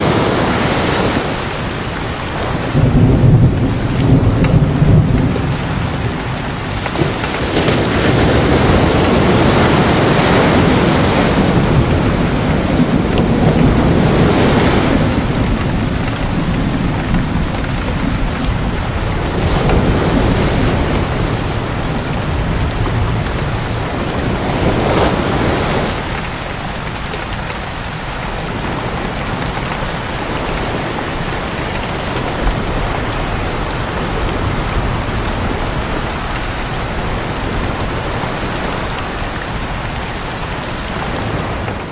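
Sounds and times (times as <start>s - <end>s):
rolling thunder: 0.0s - 27.0s
heavy rain: 0.0s - 41.9s.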